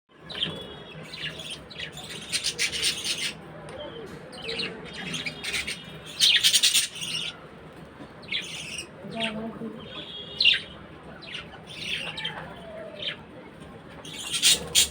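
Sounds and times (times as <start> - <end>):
budgerigars chirping and chattering: 0.3 - 3.4, 4.3 - 7.4, 8.2 - 12.4, 14.0 - 14.9.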